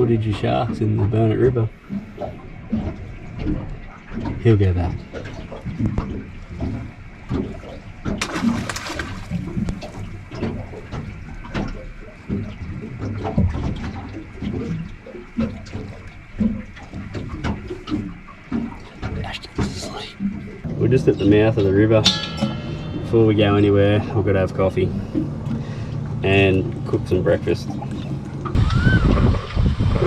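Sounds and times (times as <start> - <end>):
water sloshing against boat: 0.0 - 29.8.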